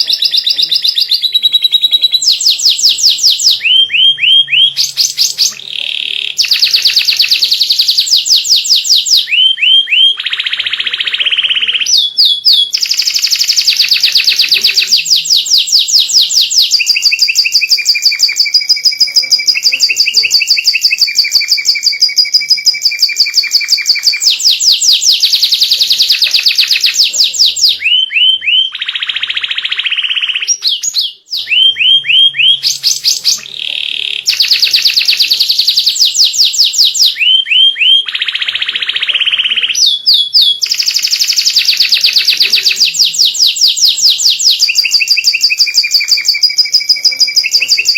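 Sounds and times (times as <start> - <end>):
canary singing trills: 0.0 - 47.9.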